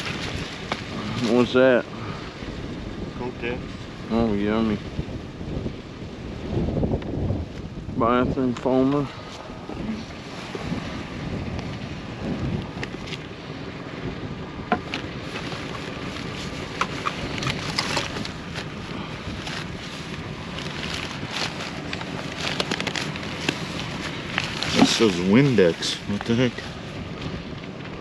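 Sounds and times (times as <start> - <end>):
wind buffeting microphone: 0.0 - 28.0
plastic bottles rustling and knocking: 14.7 - 25.8.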